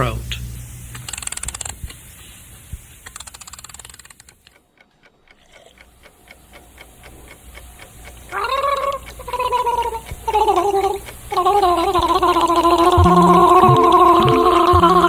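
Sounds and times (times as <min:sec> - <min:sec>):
clockwork mechanism ticking: 0:03.0 - 0:15.0.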